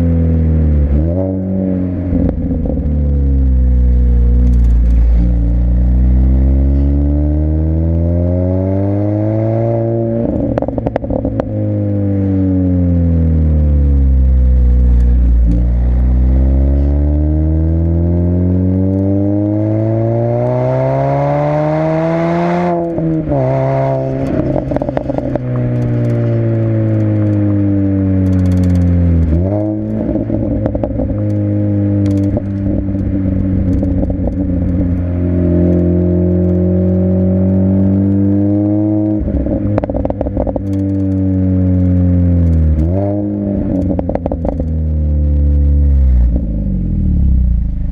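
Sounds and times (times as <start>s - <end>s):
car engine revving: 0.0s - 47.9s
exhaust crackles and pops: 2.1s - 7.0s, 10.1s - 11.8s, 13.2s - 17.0s, 22.5s - 47.9s.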